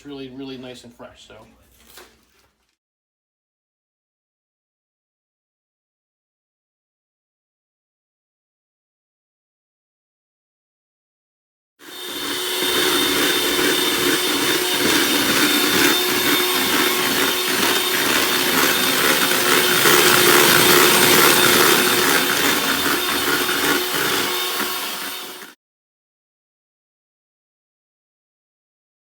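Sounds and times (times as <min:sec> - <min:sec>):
small machine whirring: 0:11.8 - 0:25.6.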